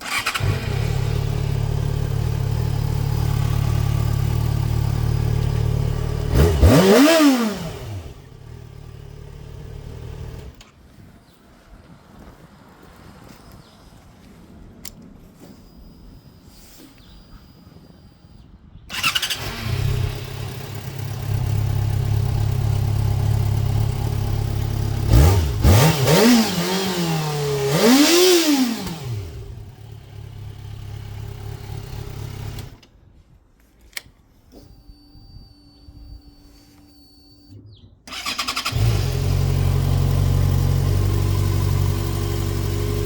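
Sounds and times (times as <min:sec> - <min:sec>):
motorcycle engine revving and idling: 0:00.0 - 0:10.6, 0:17.0 - 0:32.8, 0:36.0 - 0:43.0.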